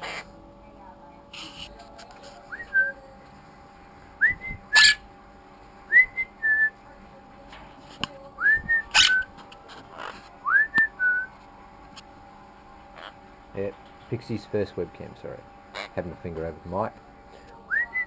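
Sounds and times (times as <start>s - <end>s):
whistled phrase: 4.2s - 4.8s, 17.7s - 18.0s.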